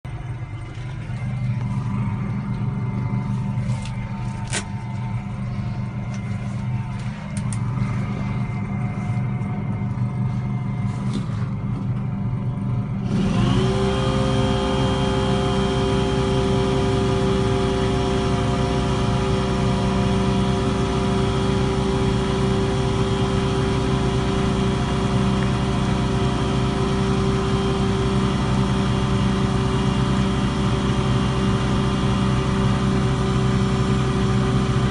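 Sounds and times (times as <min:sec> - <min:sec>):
engine idling: 0:00.0 - 0:34.9
motor-driven machine running: 0:00.1 - 0:34.9.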